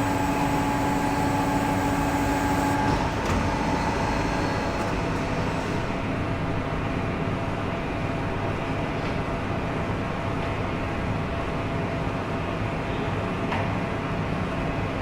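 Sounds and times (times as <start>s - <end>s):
machine hum with whine: 0.0s - 7.0s.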